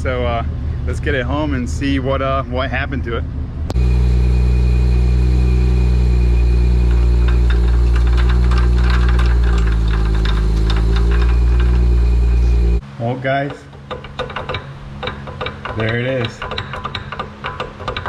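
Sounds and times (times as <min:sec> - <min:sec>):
truck engine drone: 0:00.0 - 0:18.0
light rattles: 0:03.8 - 0:18.0.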